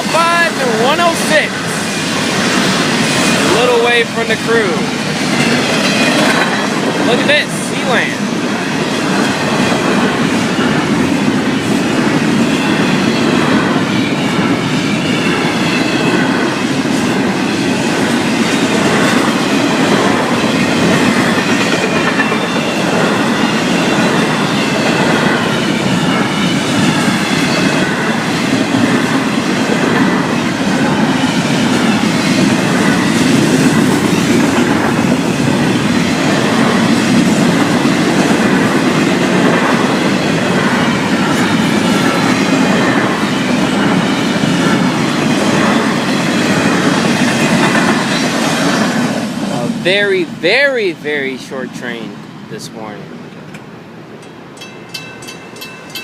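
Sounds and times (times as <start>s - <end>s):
wheels clacking over rail joints: 0.0s - 49.3s
freight train rumbling on rails: 0.0s - 56.0s.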